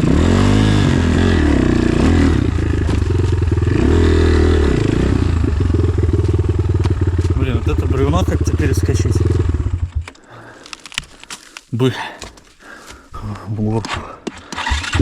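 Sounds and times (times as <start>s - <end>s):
motorcycle engine revving: 0.0s - 10.2s, 14.5s - 15.0s.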